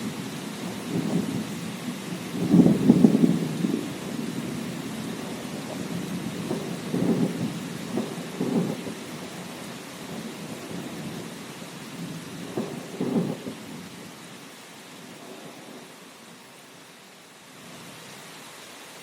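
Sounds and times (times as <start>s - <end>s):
thunder rumbling: 0.0s - 13.9s
steady rain: 0.0s - 19.0s.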